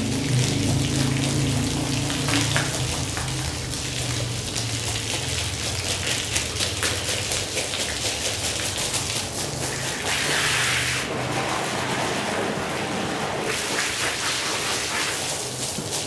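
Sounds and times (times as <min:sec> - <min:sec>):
low motor hum: 0:00.0 - 0:06.7
water spraying onto wet rug: 0:00.0 - 0:16.0.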